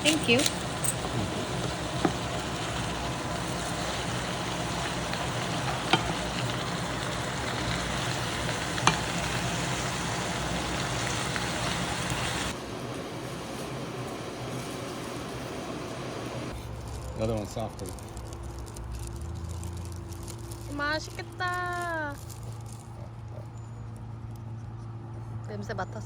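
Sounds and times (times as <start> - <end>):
peppers sizzling in a pan: 0.0 - 12.6.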